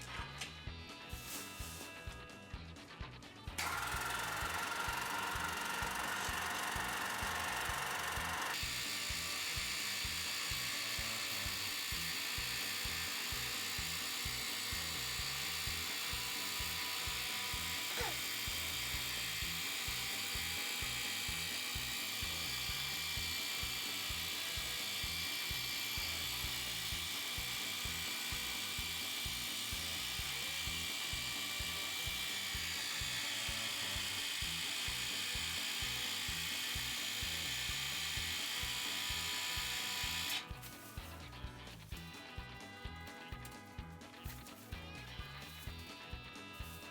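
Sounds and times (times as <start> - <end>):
washer pump motor pulsing: 3.6 - 40.6.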